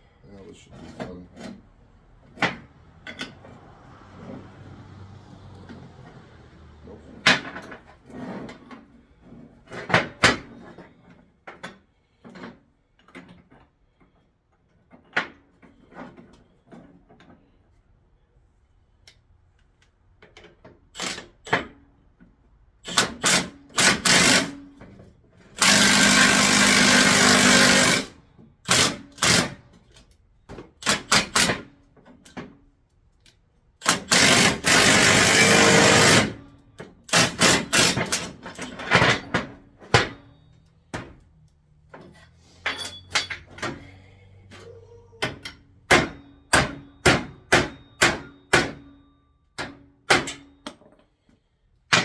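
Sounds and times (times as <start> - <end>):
air tool running: 23.8 - 24.6, 25.6 - 28.1, 34.0 - 36.3.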